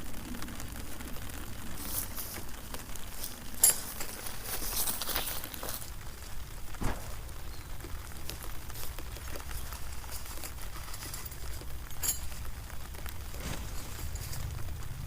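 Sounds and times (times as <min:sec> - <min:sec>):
rain pattering: 0:00.0 - 0:15.0
low rumble: 0:12.9 - 0:15.0.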